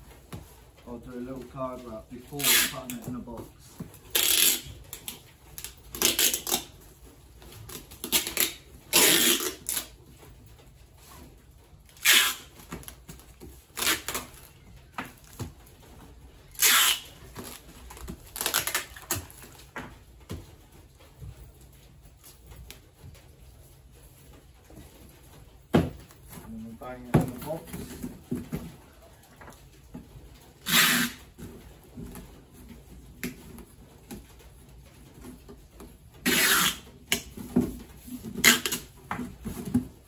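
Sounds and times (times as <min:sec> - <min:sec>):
card wrap rustling and scraping: 0:00.9 - 0:10.0, 0:11.9 - 0:21.0, 0:24.6 - 0:34.4, 0:35.0 - 0:40.0.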